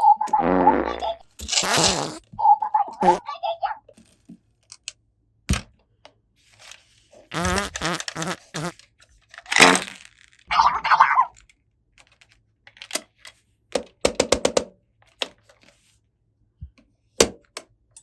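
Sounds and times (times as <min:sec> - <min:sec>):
plastic toy pieces clicking: 0:07.4 - 0:10.4.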